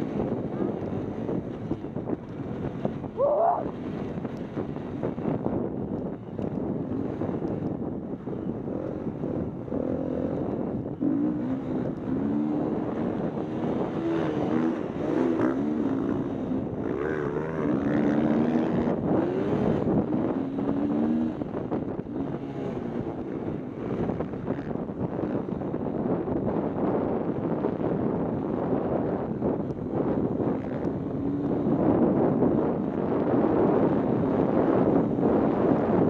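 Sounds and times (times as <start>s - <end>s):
wind buffeting microphone: 0.0s - 36.0s
dirt bike engine revving: 8.6s - 24.7s.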